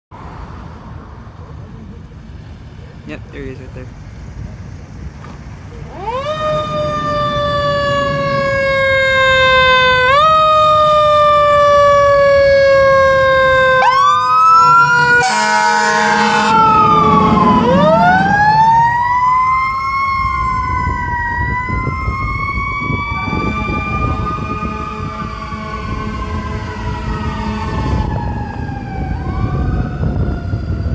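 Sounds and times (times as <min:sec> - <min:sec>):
truck engine running: 0:00.1 - 0:13.2, 0:15.6 - 0:30.9
air horn blast: 0:14.6 - 0:18.3, 0:23.2 - 0:28.2.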